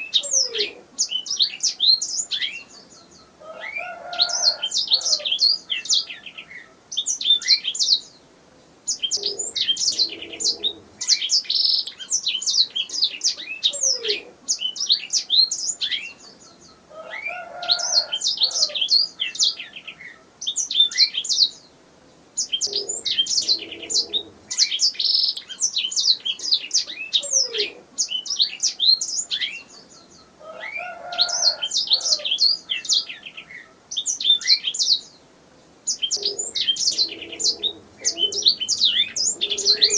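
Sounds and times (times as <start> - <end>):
canary singing chirps and trills: 0.0 - 21.7, 22.4 - 39.9.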